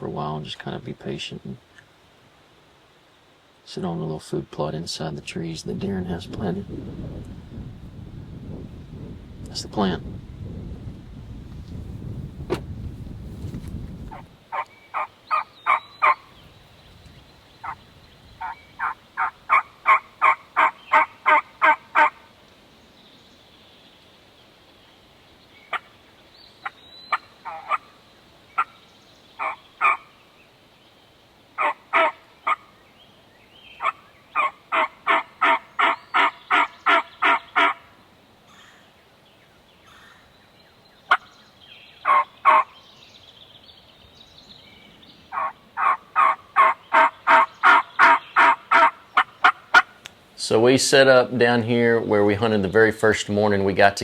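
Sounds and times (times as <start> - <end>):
turkey yelping: 14.1 - 16.4, 18.4 - 22.2, 26.6 - 27.9, 29.4 - 30.1, 31.6 - 32.7, 33.8 - 37.9, 42.0 - 42.7, 45.3 - 50.0.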